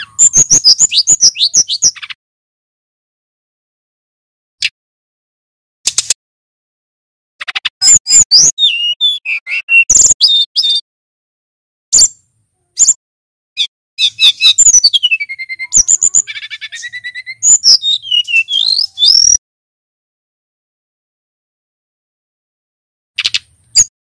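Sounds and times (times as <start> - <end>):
bird singing whistles and trills: 0.0 - 2.0, 7.8 - 10.8, 11.9 - 12.2, 13.6 - 19.4.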